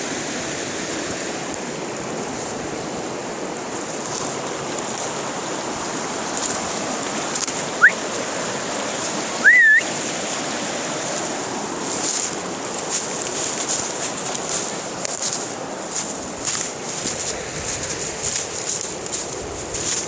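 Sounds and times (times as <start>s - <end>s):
river water rushing: 0.0s - 20.0s
rising whistles: 7.8s - 8.0s, 9.4s - 9.9s.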